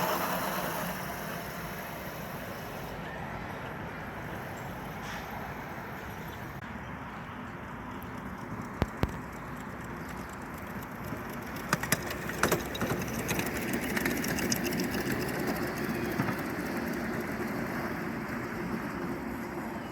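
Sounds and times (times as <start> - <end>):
miniature train running: 0.0 - 3.0, 7.8 - 19.9.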